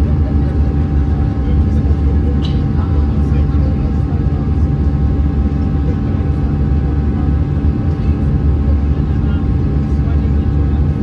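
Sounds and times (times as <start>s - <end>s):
airplane cabin drone: 0.0s - 11.0s.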